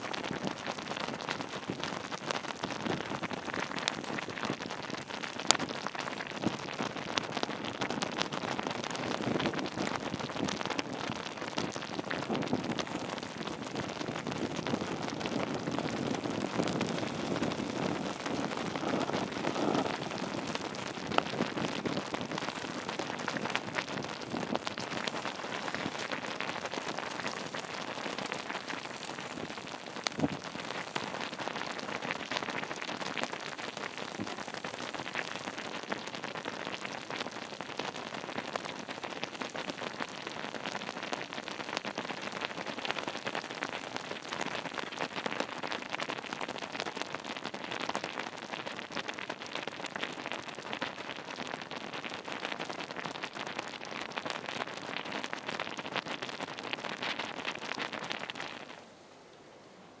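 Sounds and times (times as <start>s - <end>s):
campfire crackling and popping: 0.0s - 58.8s
faint hiss: 7.5s - 46.3s, 56.6s - 60.0s.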